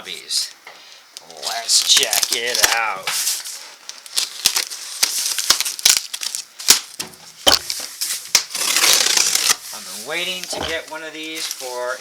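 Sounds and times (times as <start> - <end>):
cardboard scraping and rustling: 7.0 - 12.0.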